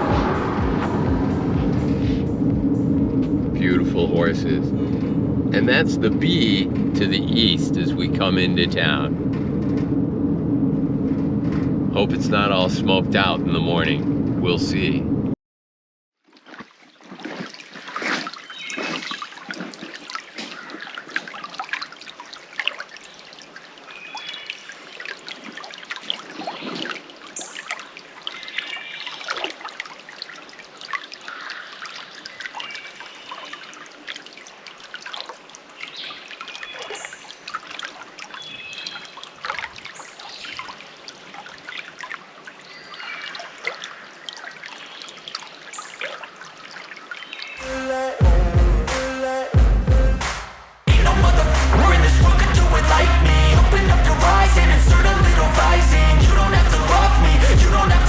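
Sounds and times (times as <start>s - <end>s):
water trickling over rocks: 16.2s - 47.6s.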